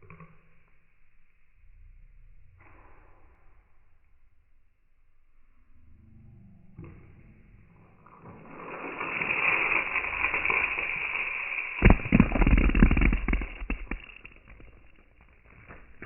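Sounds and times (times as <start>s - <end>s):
crackling pops: 7.9s - 16.0s
hissing: 8.0s - 16.0s.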